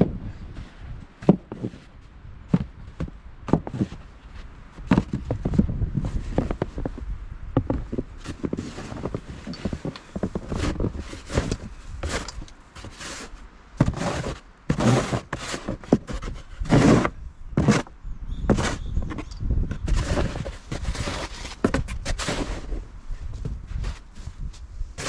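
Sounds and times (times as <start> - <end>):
snow crunching underfoot: 2.5 - 17.9, 19.9 - 25.0
shovel scraping snow: 7.9 - 17.9, 18.5 - 19.2, 19.8 - 22.9.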